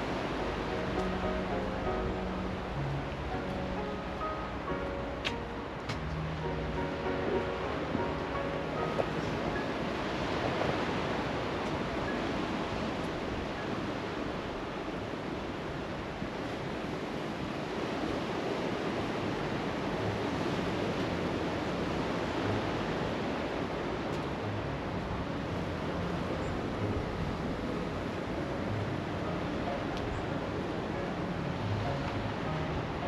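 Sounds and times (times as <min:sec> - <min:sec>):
sea waves washing onto beach: 0:00.0 - 0:33.0.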